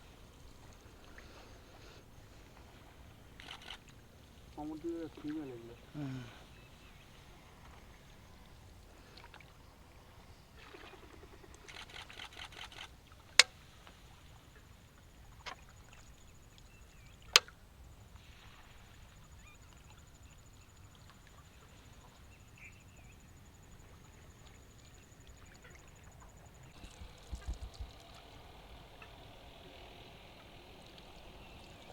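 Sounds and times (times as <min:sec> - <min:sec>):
oar splashing water: 0:00.0 - 0:10.0.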